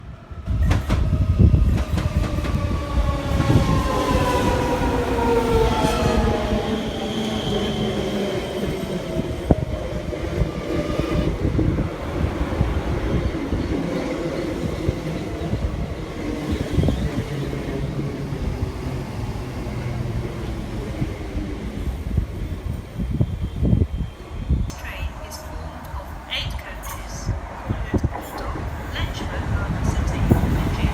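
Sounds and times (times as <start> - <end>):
train wheels rumbling on track: 0.0 - 30.9
train whine: 0.0 - 30.9.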